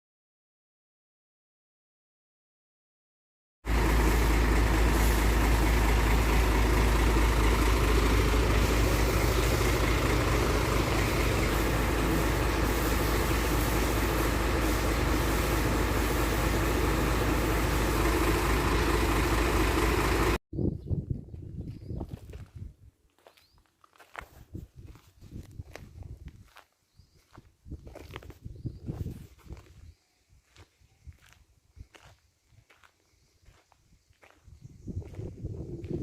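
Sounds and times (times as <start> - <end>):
truck engine running steadily: 3.7 - 20.4.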